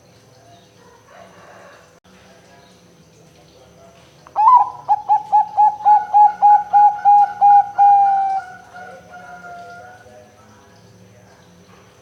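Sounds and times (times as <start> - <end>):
dove cooing: 4.4 - 10.1.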